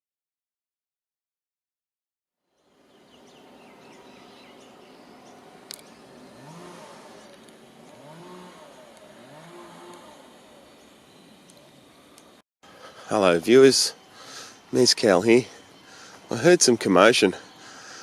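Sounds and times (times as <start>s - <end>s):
vehicle engine revving: 3.8s - 12.1s
faint bird chirps: 10.1s - 18.0s.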